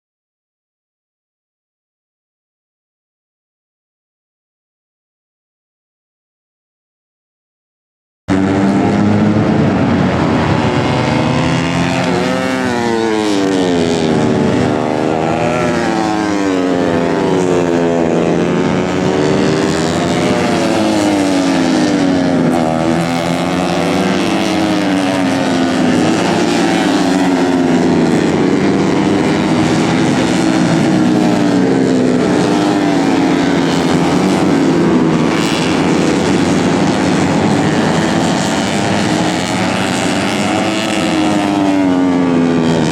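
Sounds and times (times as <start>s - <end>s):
motorcycles revving past: 8.3s - 42.9s.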